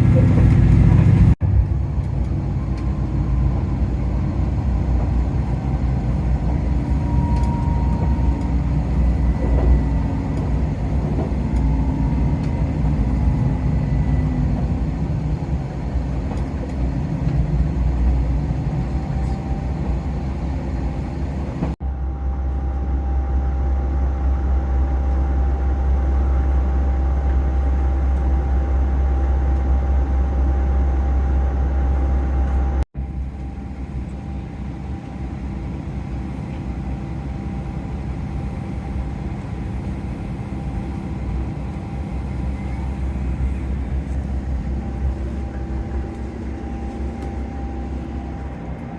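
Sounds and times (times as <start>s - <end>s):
deep hum: 0.0s - 36.5s, 37.2s - 48.9s
diesel train rumbling: 0.0s - 48.9s
faint steady whine: 18.2s - 48.9s.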